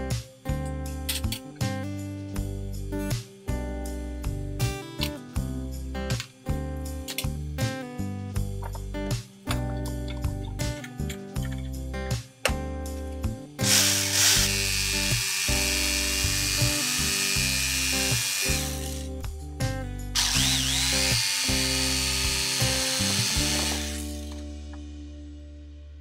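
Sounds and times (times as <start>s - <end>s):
background music: 0.0s - 26.0s
electric power tool running: 13.6s - 19.1s, 20.2s - 24.5s.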